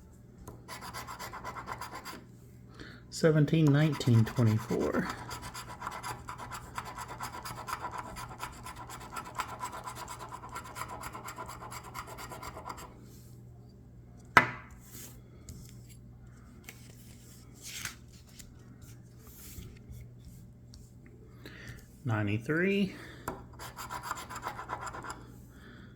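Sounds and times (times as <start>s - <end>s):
lottery ticket being scratched: 0.7s - 2.2s, 3.2s - 12.9s, 23.6s - 25.2s.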